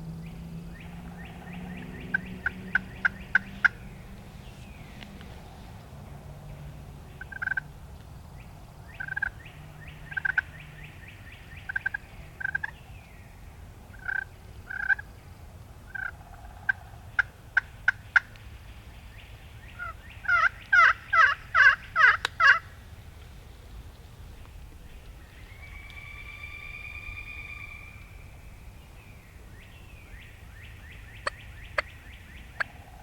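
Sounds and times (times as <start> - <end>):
turkey gobbling: 0.8 - 3.9, 7.2 - 7.6, 10.1 - 10.5, 11.7 - 12.7, 19.8 - 22.8, 24.2 - 28.5, 29.6 - 33.0
turkey call yelps: 19.8 - 22.7, 25.4 - 28.5, 30.7 - 33.0.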